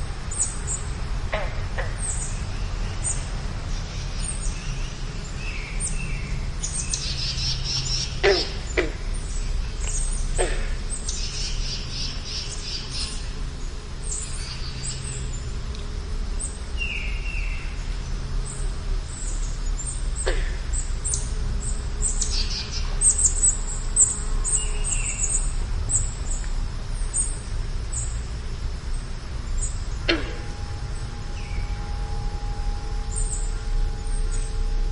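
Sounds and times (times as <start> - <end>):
birds chirping and calling: 3.8 - 13.3, 18.5 - 28.2, 28.9 - 34.9
low rumble: 13.4 - 34.9.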